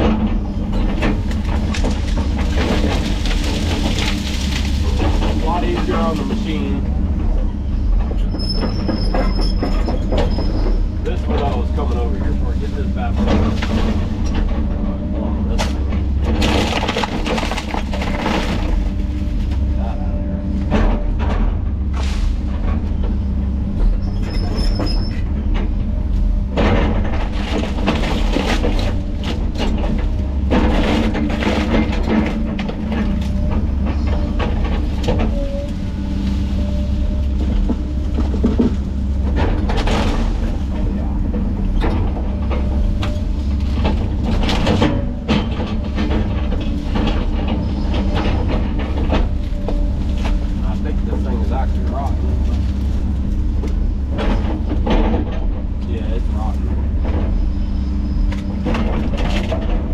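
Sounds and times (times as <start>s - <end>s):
diesel engine droning: 0.0s - 59.9s
mulcher head grinding wood: 0.0s - 59.9s
wood crunching and cracking: 0.1s - 7.1s, 15.5s - 19.7s, 26.8s - 57.0s.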